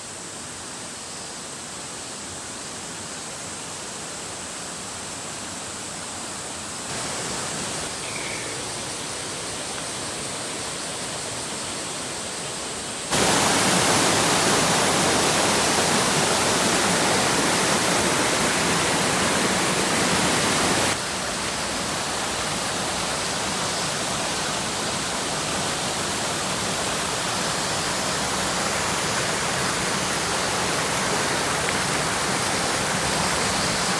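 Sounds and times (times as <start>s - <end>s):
waterfall pouring: 13.1s - 23.3s, 24.1s - 33.9s.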